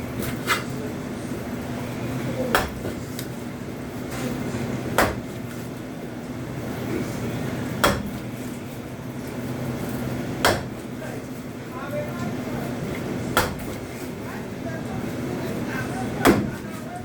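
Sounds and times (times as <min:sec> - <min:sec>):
knife chopping on cutting board: 0:02.6 - 0:03.0, 0:05.0 - 0:05.4, 0:07.8 - 0:08.2, 0:10.4 - 0:10.8, 0:13.4 - 0:13.8.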